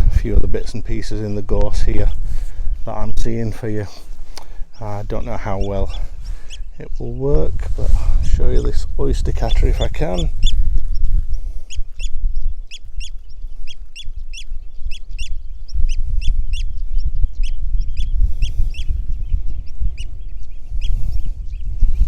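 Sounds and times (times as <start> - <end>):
wind rumble on microphone: 0.0 - 22.0
bird piping calls: 3.8 - 7.5, 8.2 - 22.0.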